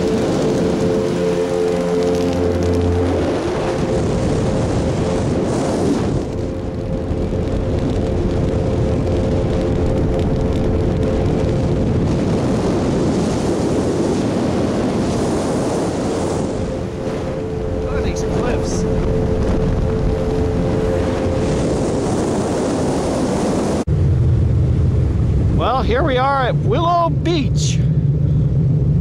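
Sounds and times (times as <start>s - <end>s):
motorboat engine drone: 0.0s - 29.0s
wind and water rushing: 0.0s - 29.0s.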